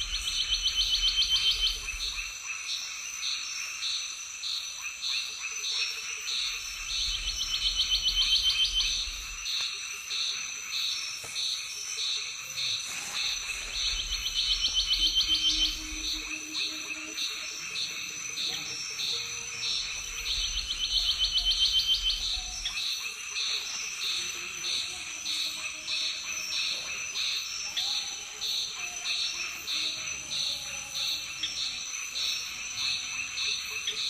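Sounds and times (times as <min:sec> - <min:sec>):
constant high whine: 0:06.4 - 0:09.8
animals chirping: 0:11.2 - 0:34.0.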